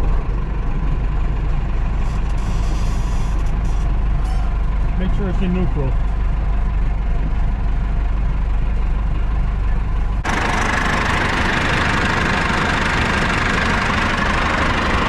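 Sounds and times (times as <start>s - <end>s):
tractor diesel engine idling: 0.0s - 15.0s.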